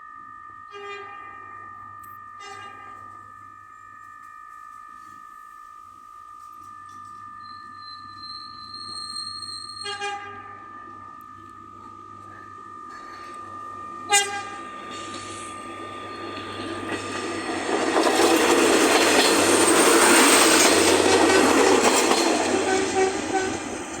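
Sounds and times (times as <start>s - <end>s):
railcar wheel and rail noise: 0.0s - 24.0s
railcar horn blast: 0.7s - 1.4s, 2.4s - 3.1s, 9.8s - 10.6s, 14.1s - 15.0s, 22.4s - 23.8s.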